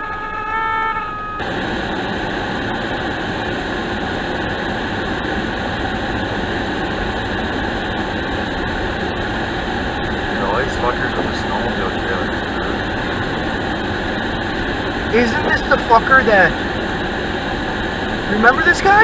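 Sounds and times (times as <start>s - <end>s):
held horn-like tone: 0.0s - 1.8s
car blower and road noise: 0.0s - 19.0s.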